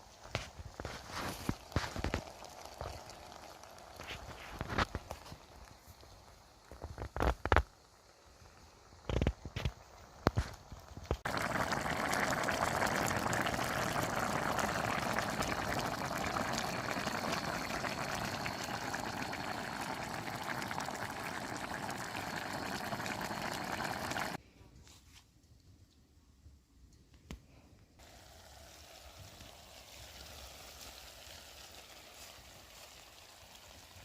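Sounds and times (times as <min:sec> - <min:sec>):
water pouring: 0:00.3 - 0:24.4.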